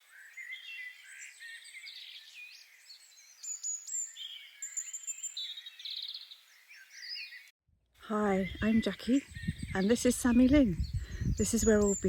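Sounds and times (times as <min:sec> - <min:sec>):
songbirds singing and calling: 0:00.0 - 0:12.0.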